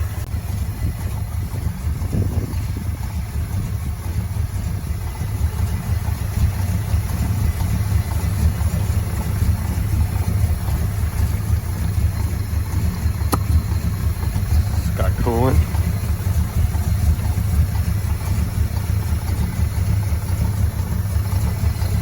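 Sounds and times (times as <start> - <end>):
pickup truck engine idling: 0.0 - 22.0.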